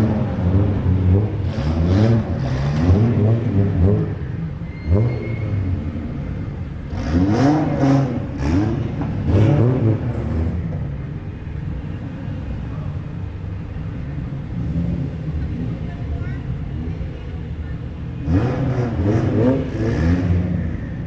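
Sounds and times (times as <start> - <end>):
engine revving: 0.0 - 10.7, 18.2 - 20.8
car engines running at low revs: 0.0 - 21.0.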